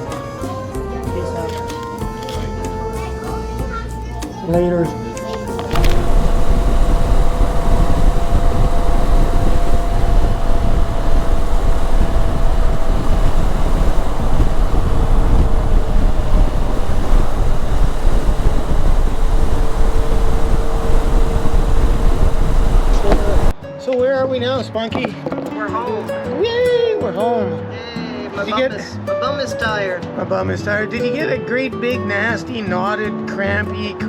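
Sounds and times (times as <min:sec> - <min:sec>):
motorcycle engine drone: 0:05.7 - 0:23.5
wind rumble on microphone: 0:05.7 - 0:23.6.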